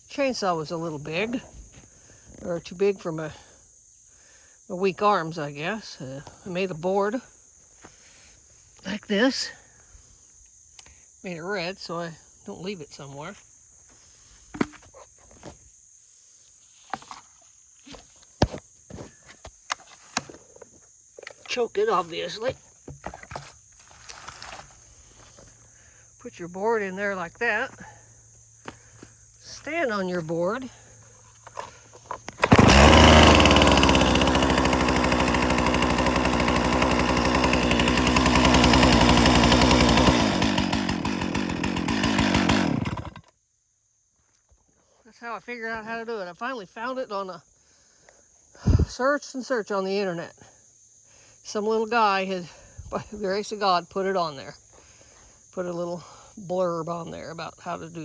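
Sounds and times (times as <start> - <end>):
crickets chirring: 0.0 - 58.0
handling knocks and clunks: 17.9 - 25.6
chainsaw running: 31.4 - 43.3.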